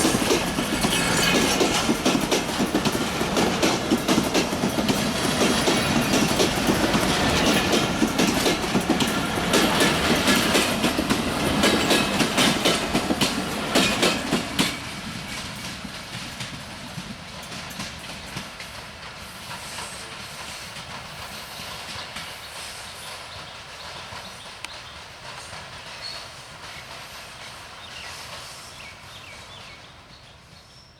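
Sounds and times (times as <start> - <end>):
wheels clicking over rail joints: 0.0 - 19.3
train passing: 0.0 - 30.8.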